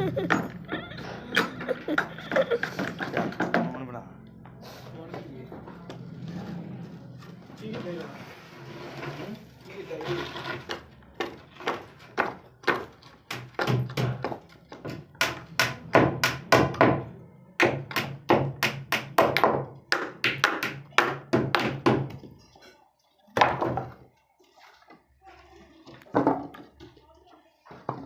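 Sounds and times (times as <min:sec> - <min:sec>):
repeated knocks: 0:01.4 - 0:03.8, 0:11.2 - 0:22.4.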